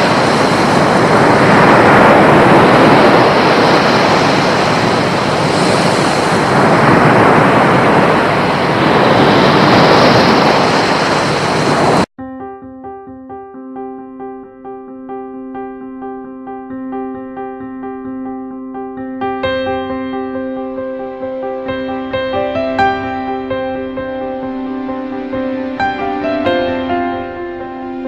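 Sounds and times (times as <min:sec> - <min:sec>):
loud rushing noise: 0:00.0 - 0:12.1
soft piano music: 0:12.2 - 0:28.0.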